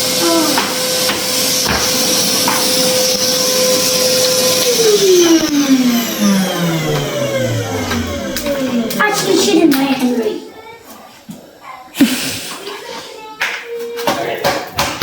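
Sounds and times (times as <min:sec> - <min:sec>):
vacuum cleaner motor winding down: 0:00.0 - 0:10.4.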